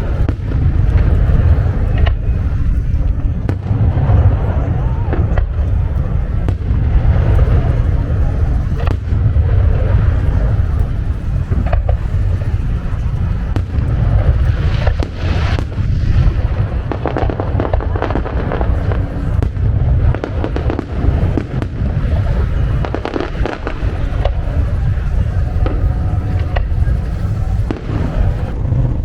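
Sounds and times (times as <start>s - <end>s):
firework shells booming: 0.0s - 29.0s
fireworks crackling: 0.0s - 29.0s.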